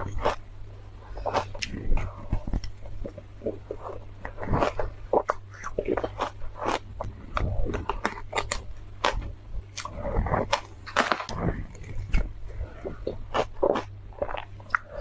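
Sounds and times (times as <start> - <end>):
steady low hum: 0.0 - 15.0
ice being chewed crunching: 9.8 - 15.0.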